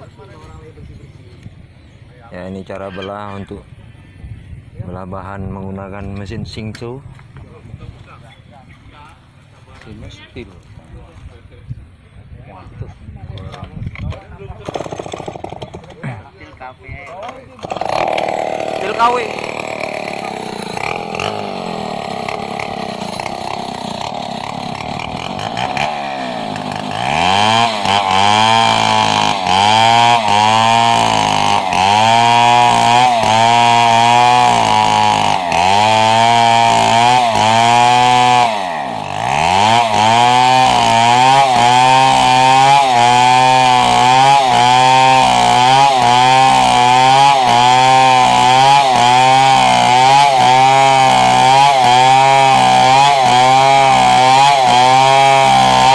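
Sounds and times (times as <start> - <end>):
chainsaw cutting wood: 14.0 - 16.2, 17.2 - 55.9.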